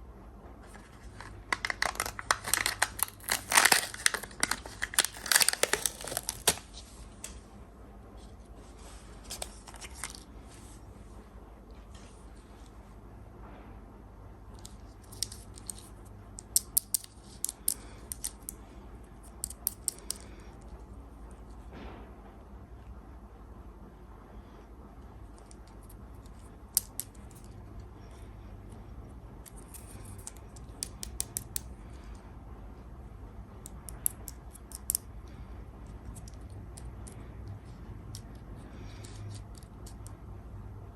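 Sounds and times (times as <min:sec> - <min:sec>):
sweet wrappers crinkling: 0:00.6 - 0:06.8, 0:09.2 - 0:10.3
soft wrapper rustle: 0:00.6 - 0:07.2, 0:08.2 - 0:10.9.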